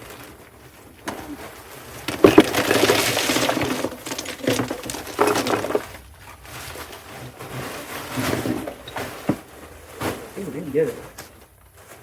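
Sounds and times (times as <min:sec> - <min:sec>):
stones poured into plastic tub: 0:00.0 - 0:08.9.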